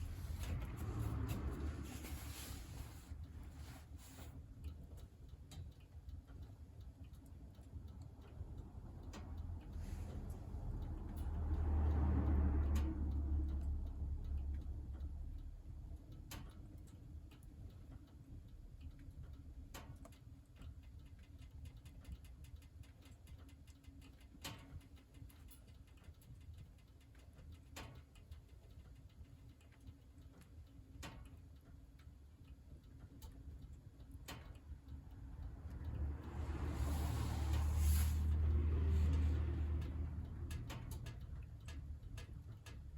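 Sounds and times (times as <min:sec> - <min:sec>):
low rushing sound: 0:00.0 - 0:03.2, 0:35.6 - 0:40.4
firewood crackling in a stove: 0:00.0 - 0:42.9.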